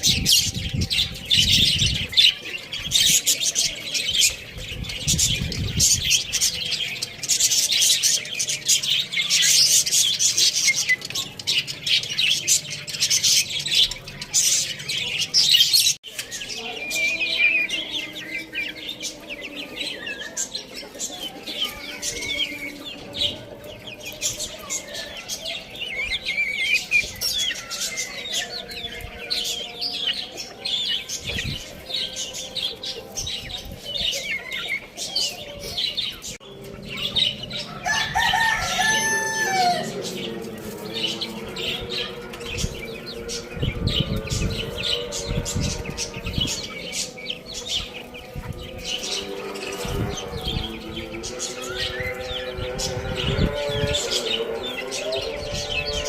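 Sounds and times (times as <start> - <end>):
small birds chirping: 0.0 - 56.0
rooster crowing: 37.5 - 40.2.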